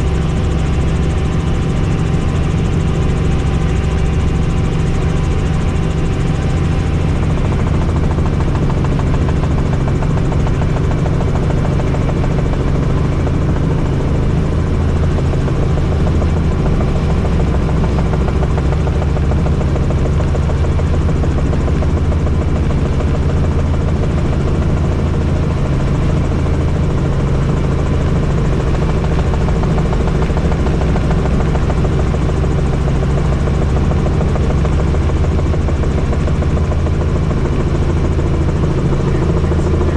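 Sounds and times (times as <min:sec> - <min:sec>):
helicopter rotor and turbine noise: 0:00.0 - 0:39.9.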